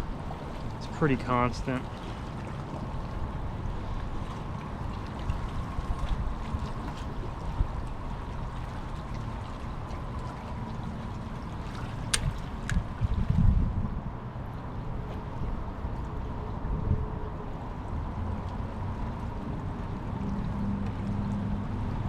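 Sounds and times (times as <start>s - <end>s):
low bumps: 0.0s - 2.1s
water lapping against hull: 0.0s - 22.0s
wind rumble on microphone: 0.0s - 22.0s.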